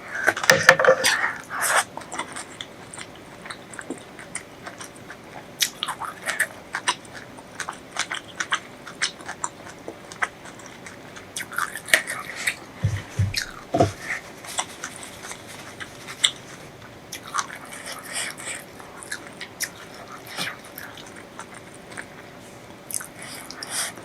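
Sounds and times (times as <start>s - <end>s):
chewing and biting: 0.9s - 24.0s
low thumps: 12.8s - 14.0s.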